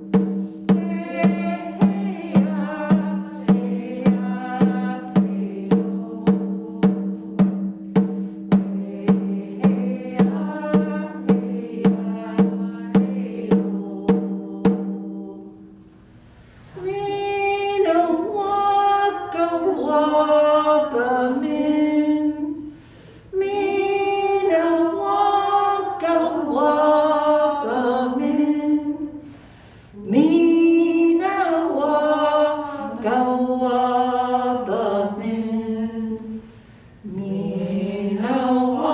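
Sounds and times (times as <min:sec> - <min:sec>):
woman singing unaccompanied: 0:00.0 - 0:07.7, 0:08.5 - 0:15.7, 0:16.7 - 0:29.3, 0:29.9 - 0:38.9
drum beating steadily: 0:00.0 - 0:15.8.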